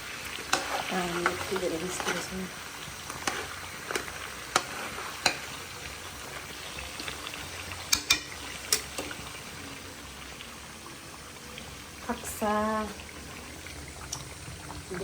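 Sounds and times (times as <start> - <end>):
meat sizzling in a pan: 0.0 - 15.0.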